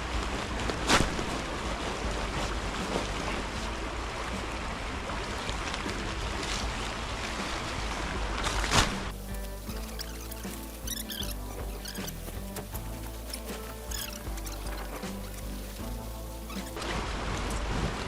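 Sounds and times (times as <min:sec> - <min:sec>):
wind rumble on microphone: 0:00.0 - 0:09.9, 0:14.0 - 0:18.0
outdoor noise: 0:00.0 - 0:18.0.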